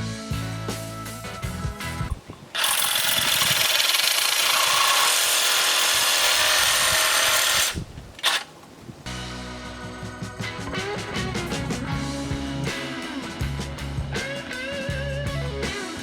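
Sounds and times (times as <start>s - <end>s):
rock music: 0.0s - 2.2s, 9.1s - 16.0s
reciprocating saw cutting metal: 2.6s - 8.5s.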